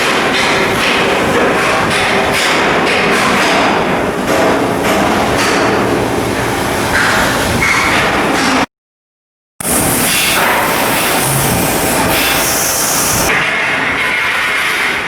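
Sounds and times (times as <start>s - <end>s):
metalworking din: 9.6s - 13.3s.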